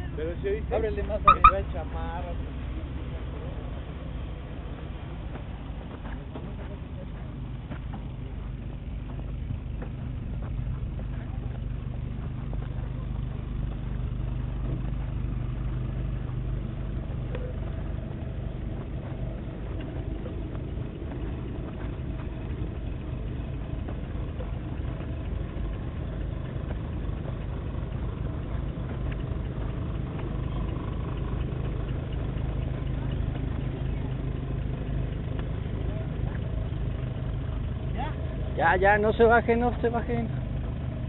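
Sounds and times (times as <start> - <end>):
jeep engines humming: 0.0 - 41.0.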